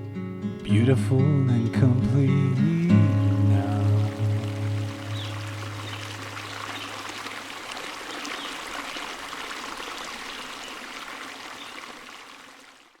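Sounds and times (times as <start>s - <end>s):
stream water trickling: 2.8s - 13.0s.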